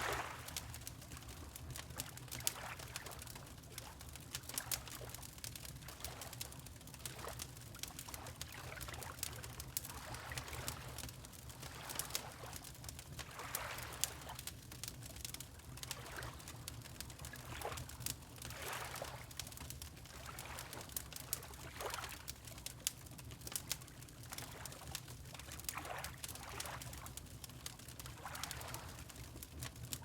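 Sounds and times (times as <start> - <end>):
water lapping: 0.0 - 1.4, 18.5 - 19.2, 28.2 - 29.2
wood fire crackling and popping: 0.0 - 13.4, 14.0 - 30.0.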